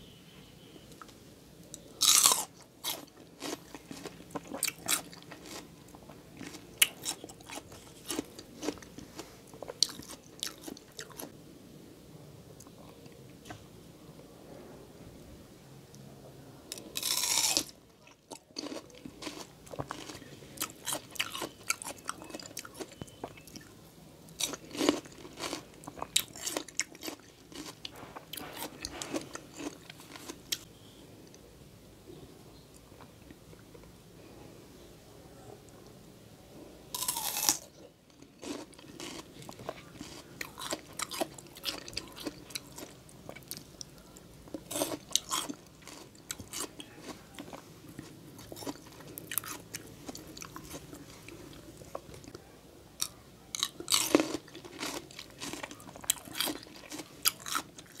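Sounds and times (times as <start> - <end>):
crunchy chewing of raw fruit: 0.8 - 11.4, 16.7 - 30.9, 36.9 - 58.0.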